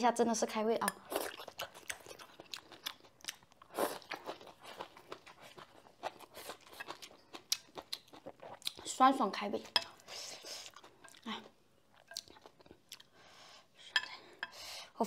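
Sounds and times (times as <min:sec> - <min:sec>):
mouth chewing with wet clicks: 0:00.9 - 0:09.0, 0:11.9 - 0:13.2.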